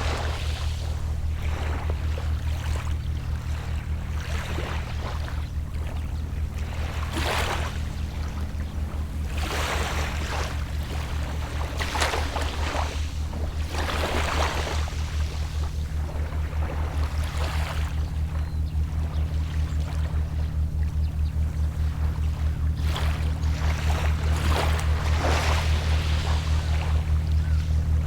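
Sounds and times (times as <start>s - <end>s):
distant boat engine hum: 0.0s - 28.0s
gentle waves washing on shore: 22.8s - 28.0s.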